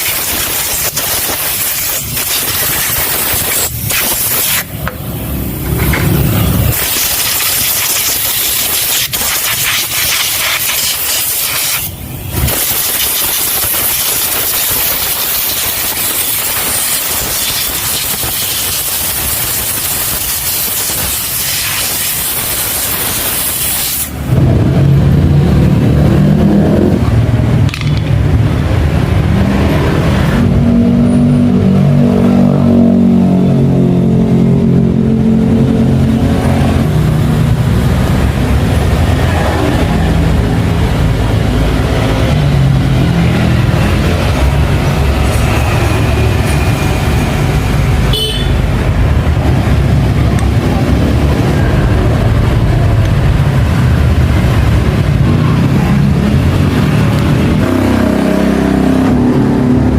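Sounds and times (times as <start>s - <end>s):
engine running with shifting pitch: 4.6s - 7.6s, 24.1s - 59.9s.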